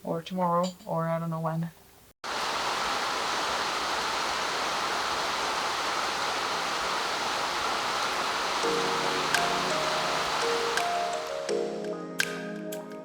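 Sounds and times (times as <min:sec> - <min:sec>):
steady rushing hiss: 0:02.2 - 0:11.7.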